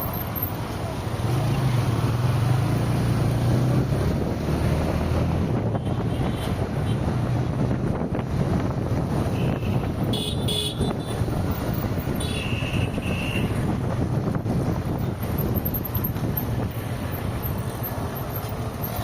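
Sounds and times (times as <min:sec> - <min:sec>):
road and wind noise: 0:00.0 - 0:19.0
vehicle horns honking: 0:05.6 - 0:07.0, 0:09.3 - 0:11.3, 0:12.1 - 0:13.6.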